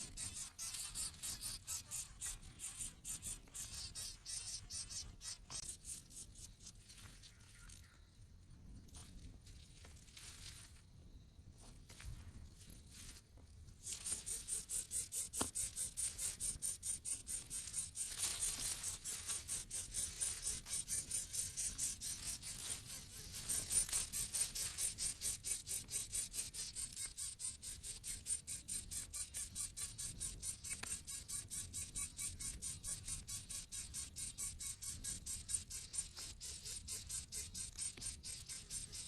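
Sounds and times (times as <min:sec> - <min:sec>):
nestlings chirping: 0:00.0 - 0:05.7.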